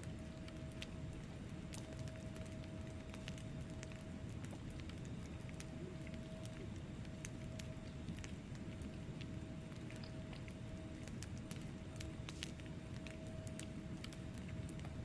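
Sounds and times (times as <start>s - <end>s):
faint steady hum: 0.0s - 15.0s
low rumble of flames: 0.0s - 15.0s
logs crackling and snapping: 0.1s - 15.0s.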